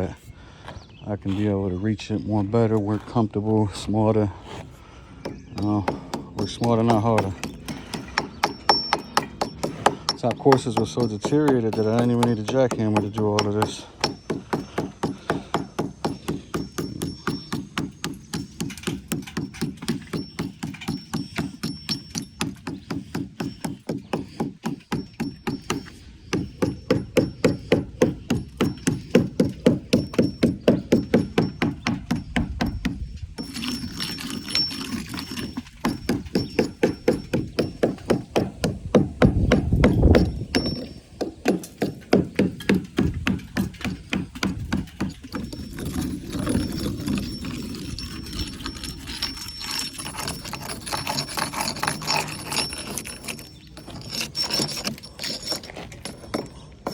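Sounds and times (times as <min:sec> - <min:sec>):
hammer striking brick: 0:05.3 - 0:47.4.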